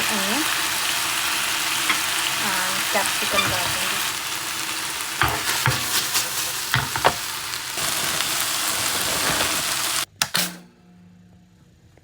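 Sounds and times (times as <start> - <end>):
vegetables sizzling in hot oil: 0.0 - 10.1
utensil scraping pan: 1.8 - 4.2, 5.2 - 10.0.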